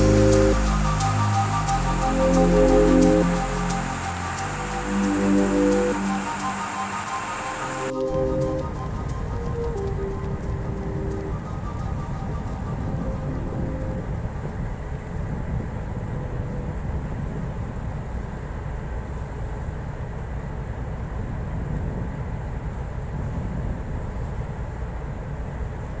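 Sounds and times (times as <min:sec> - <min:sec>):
faint high whine: 0:00.0 - 0:18.4
engine room machinery rumble: 0:00.0 - 0:26.0.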